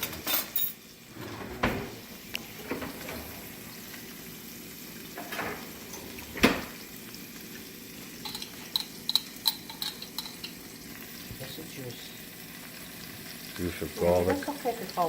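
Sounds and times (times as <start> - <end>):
food sizzling in oil: 3.5 - 5.3, 6.7 - 15.0.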